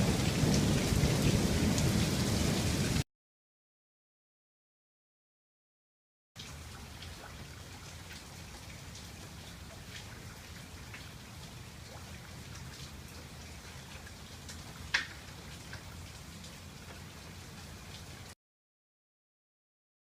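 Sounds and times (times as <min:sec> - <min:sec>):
steady rain: 0:00.0 - 0:03.0, 0:06.4 - 0:18.4.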